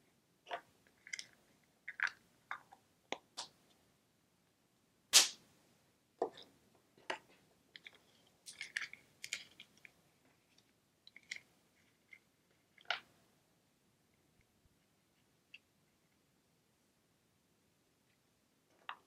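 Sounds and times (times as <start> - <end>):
plastic shells clicking and rustling: 7.8 - 9.9.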